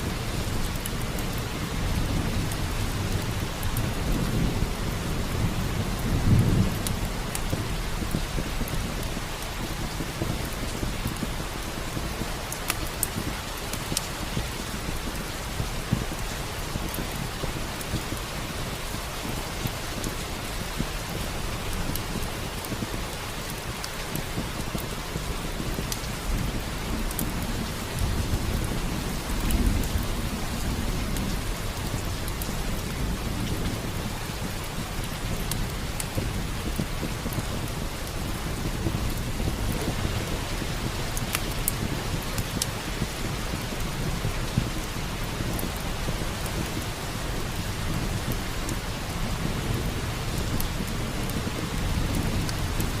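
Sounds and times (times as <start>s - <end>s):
steady rain: 0.0s - 53.0s
wood fire crackling: 0.0s - 53.0s
thunder rumbling: 24.0s - 53.0s.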